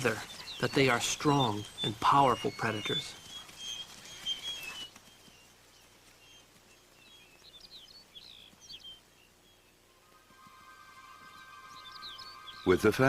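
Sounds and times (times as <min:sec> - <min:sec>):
faint outdoor background: 0:00.0 - 0:13.0
faint high-pitched chirps: 0:06.8 - 0:13.0.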